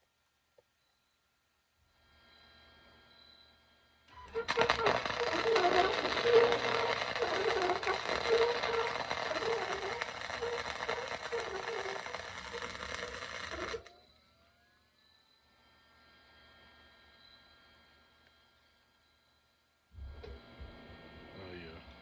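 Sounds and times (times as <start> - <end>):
welder arc crackling: 4.2 - 13.9.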